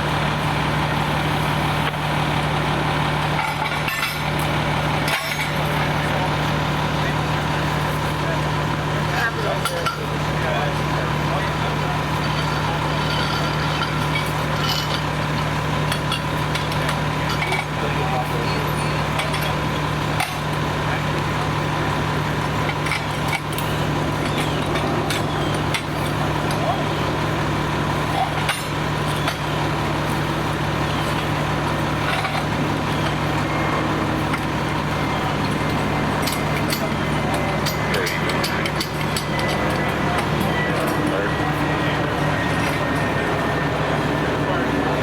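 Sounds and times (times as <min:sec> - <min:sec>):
fire truck engine idling: 0:00.0 - 0:45.0.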